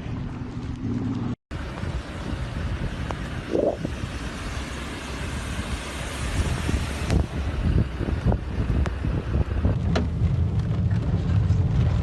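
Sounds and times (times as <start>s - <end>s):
low rumble of road traffic: 0.0s - 12.0s
wind noise on microphone: 0.0s - 12.0s.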